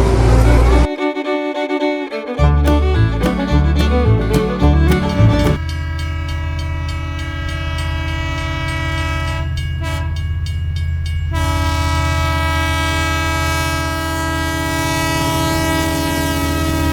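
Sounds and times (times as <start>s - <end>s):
train rumbling: 2.6s - 16.9s
train horn: 5.7s - 10.2s, 11.3s - 16.9s.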